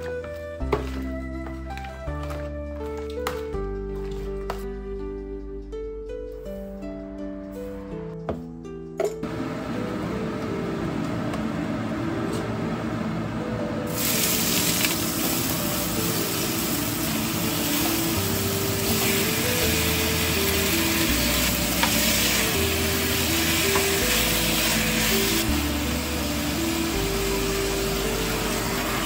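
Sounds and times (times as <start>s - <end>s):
background music with simple melody: 0.0s - 29.0s
food sizzling in hot oil: 13.9s - 29.0s.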